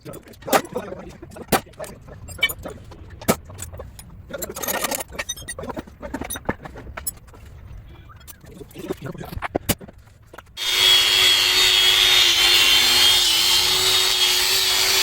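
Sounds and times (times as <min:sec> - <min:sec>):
metal tools clinking: 0:02.3 - 0:02.8, 0:03.6 - 0:07.2.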